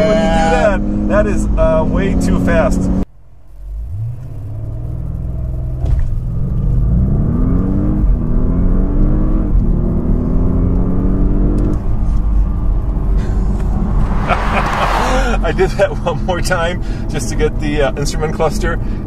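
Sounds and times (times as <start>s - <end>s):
car engine accelerating: 3.6s - 17.8s.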